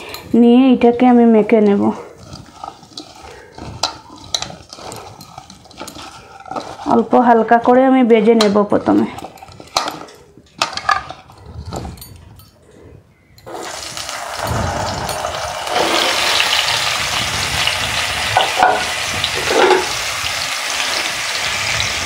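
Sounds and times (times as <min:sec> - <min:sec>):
vegetables sizzling in hot oil: 0:13.5 - 0:22.0.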